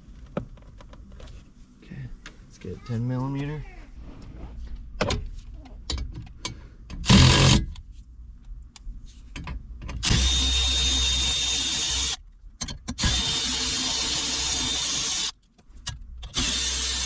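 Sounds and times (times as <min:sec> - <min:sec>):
cordless power driver whining: 0:07.0 - 0:07.7, 0:10.0 - 0:12.2, 0:13.0 - 0:15.3, 0:16.3 - 0:17.0.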